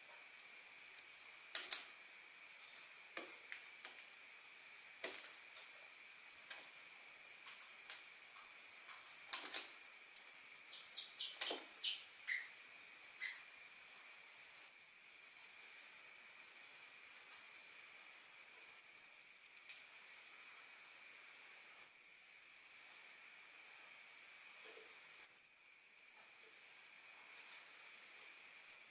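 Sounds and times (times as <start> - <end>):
steady high hum: 0.0 - 28.9
thrush falling whistles: 6.4 - 7.4.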